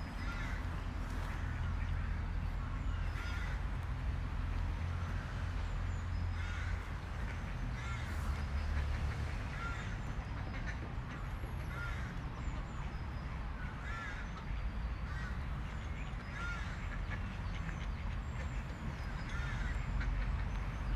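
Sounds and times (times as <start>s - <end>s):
large birds calling harshly: 0.1s - 2.2s, 13.8s - 14.4s, 16.2s - 20.1s.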